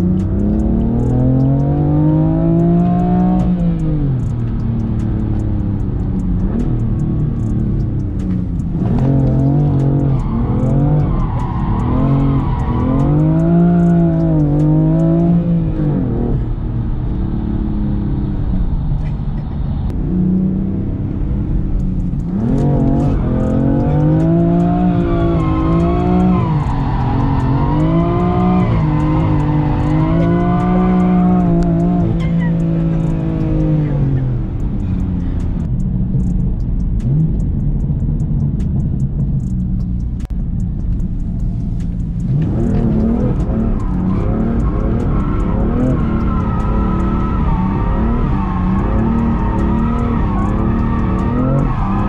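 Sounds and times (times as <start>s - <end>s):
car engine revving: 0.0s - 52.0s.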